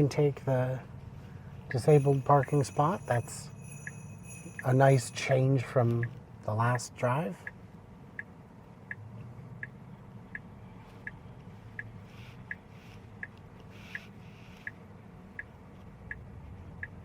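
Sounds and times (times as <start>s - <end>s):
low cabin hum: 0.0s - 12.1s
turn signal ticking: 0.9s - 17.0s.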